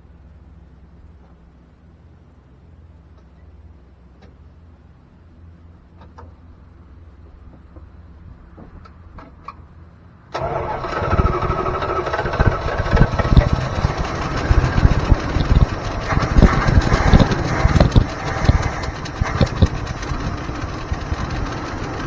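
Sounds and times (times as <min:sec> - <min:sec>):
pickup engine starting and running: 0:10.3 - 0:22.0
faint engine ticks: 0:10.4 - 0:22.0.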